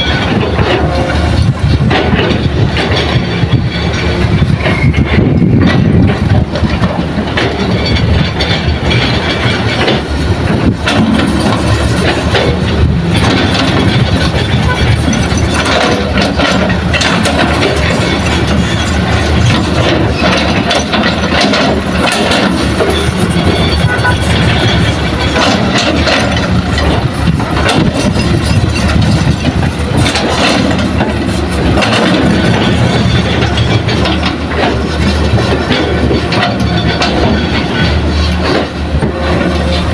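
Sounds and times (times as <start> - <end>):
clanks and knocks: 0.0 - 39.9
heavy diesel machinery running: 0.0 - 39.9.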